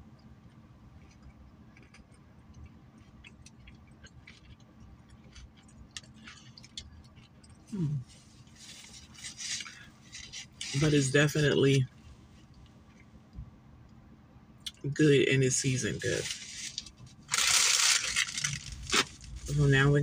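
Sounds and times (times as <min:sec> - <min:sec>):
person chewing quietly: 0:00.0 - 0:10.8
person humming mm: 0:07.7 - 0:08.1.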